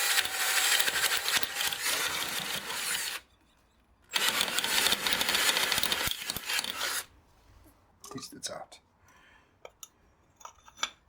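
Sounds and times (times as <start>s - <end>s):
power drill running: 0.0s - 3.2s, 4.1s - 7.1s.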